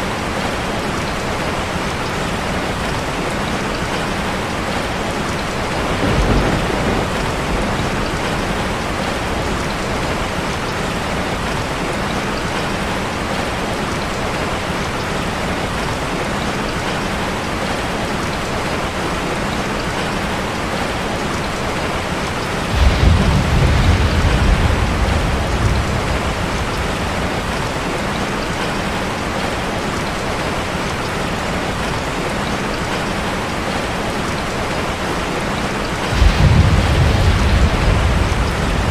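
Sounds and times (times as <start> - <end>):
heavy rain on a metal roof: 0.0 - 38.9
low thunder rumbling: 5.4 - 11.5, 22.6 - 29.4, 35.9 - 38.9.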